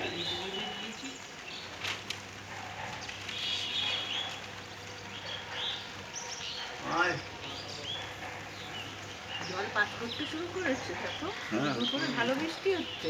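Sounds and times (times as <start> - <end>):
rainfall hiss: 0.0 - 13.0
birds chirping: 2.9 - 13.0.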